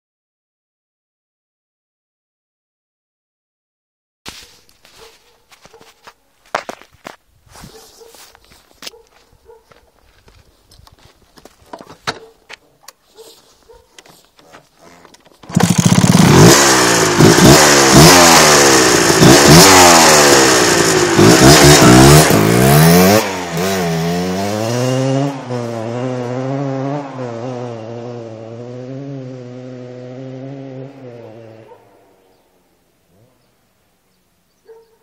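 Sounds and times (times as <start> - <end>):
two-stroke motorcycle engine revving: 14.8 - 32.0.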